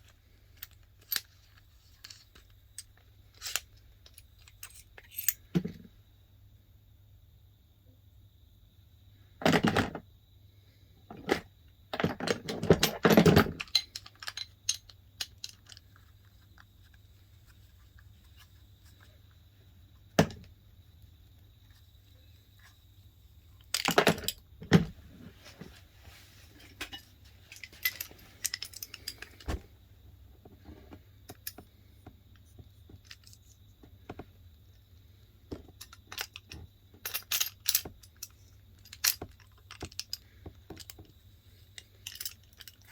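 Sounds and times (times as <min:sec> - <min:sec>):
metal tool clicking and clinking: 0:27.6 - 0:29.6.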